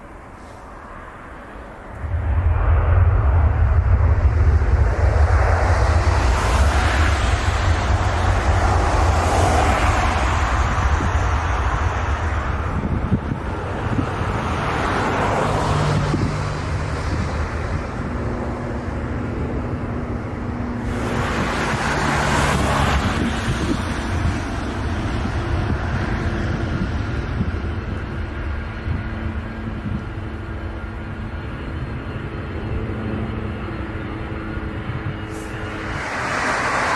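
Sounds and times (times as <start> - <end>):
jet engines rumbling: 0.0 - 36.9
wind buffeting microphone: 0.0 - 36.9.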